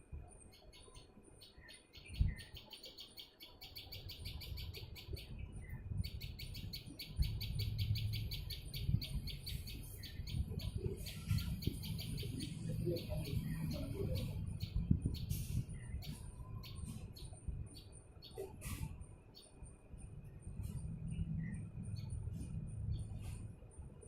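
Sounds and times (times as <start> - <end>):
small birds chirping: 0.2 - 24.0
steady low rumble: 5.2 - 24.0.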